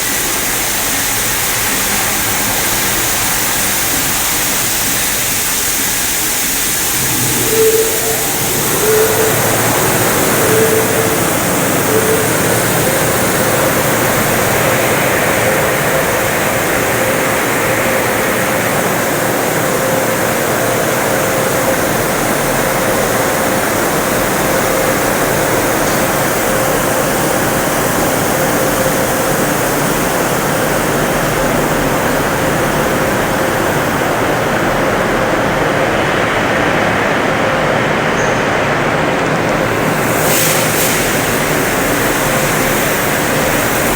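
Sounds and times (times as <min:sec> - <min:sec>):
car wash machinery and spray: 0:00.0 - 0:43.9
thin steady hum: 0:06.7 - 0:16.1.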